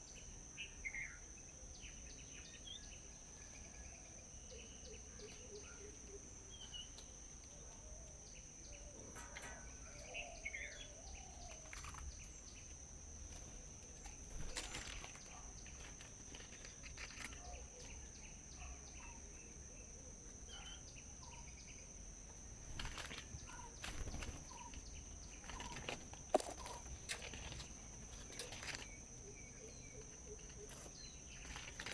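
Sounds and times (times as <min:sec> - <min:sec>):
high insect drone: 0:00.0 - 0:31.9
bird chirps: 0:22.9 - 0:31.9.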